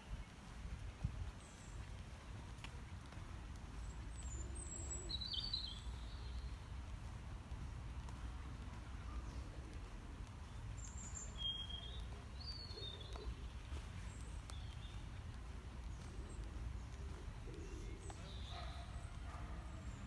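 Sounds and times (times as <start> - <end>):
low outdoor background noise: 0.0 - 20.0
bird chirps: 3.8 - 6.6, 10.4 - 20.0.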